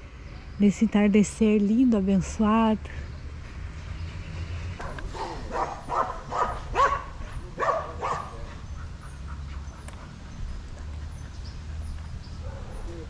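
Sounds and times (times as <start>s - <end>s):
dog barking: 4.8s - 8.6s, 12.4s - 13.0s.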